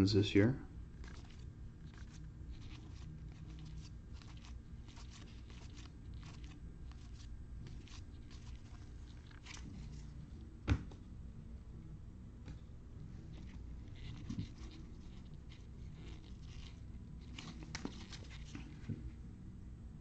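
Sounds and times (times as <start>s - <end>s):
cards clicking and rustling: 1.0s - 10.0s, 13.4s - 19.0s.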